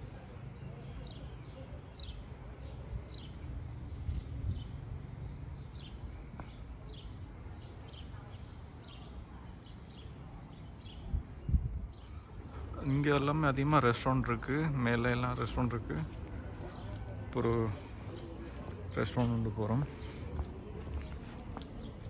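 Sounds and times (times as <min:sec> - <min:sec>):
wind on microphone: 0:11.0 - 0:12.0.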